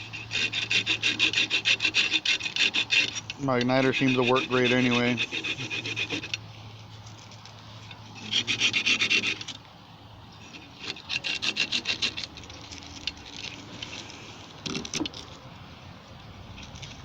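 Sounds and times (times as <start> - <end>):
abrasive scrubbing metal: 0.0 - 6.4, 8.2 - 9.5.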